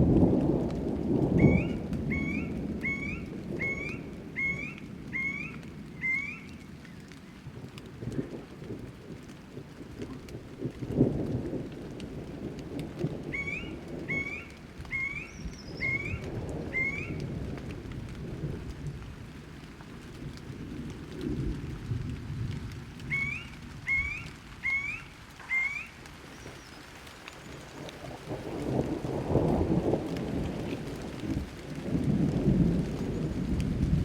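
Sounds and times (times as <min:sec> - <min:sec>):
rolling thunder: 0:00.0 - 0:06.2, 0:07.4 - 0:19.4, 0:20.0 - 0:25.0, 0:27.5 - 0:34.0
steady rain: 0:00.0 - 0:34.0
bird calling short rising notes: 0:01.4 - 0:06.6, 0:13.3 - 0:17.2, 0:23.1 - 0:26.9.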